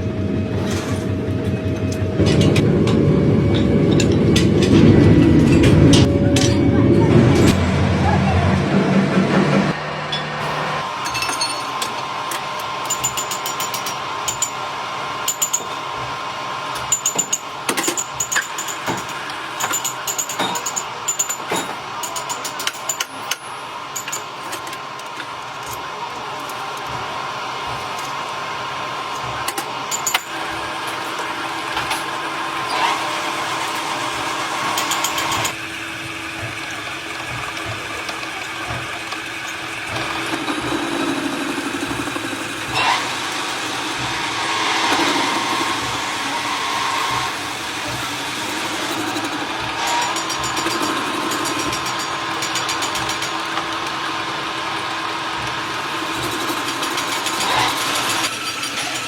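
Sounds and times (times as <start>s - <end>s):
higher steady tone: 0.0s - 11.7s
machinery hum with whine: 0.0s - 59.0s.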